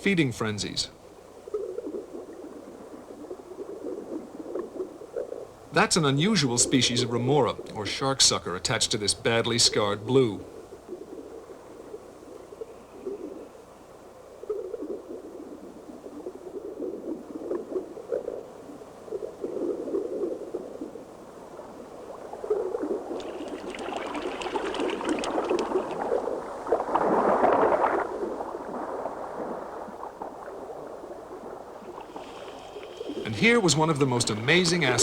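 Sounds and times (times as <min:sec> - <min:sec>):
sea water sloshing and splashing: 0:19.1 - 0:35.0.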